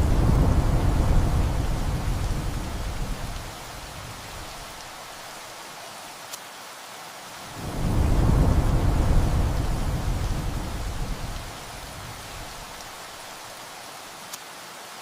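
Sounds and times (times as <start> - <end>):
thunder rumbling: 0.0 - 4.9, 7.6 - 13.0
steady rain: 0.0 - 15.0.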